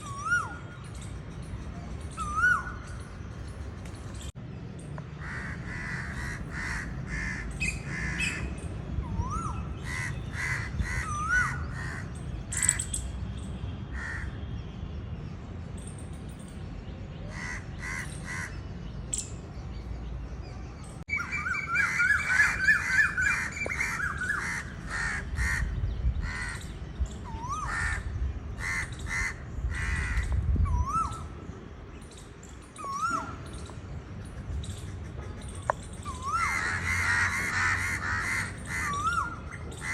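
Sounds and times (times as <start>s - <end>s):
birds chirping and cawing: 0.0s - 14.6s, 15.2s - 39.9s
whistled bird notes: 1.8s - 3.1s, 32.4s - 33.8s.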